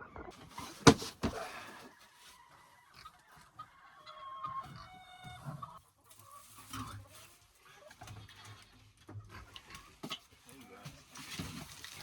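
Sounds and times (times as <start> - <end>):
chickens clucking: 0.0 - 8.3
sharp knocks: 0.8 - 1.5.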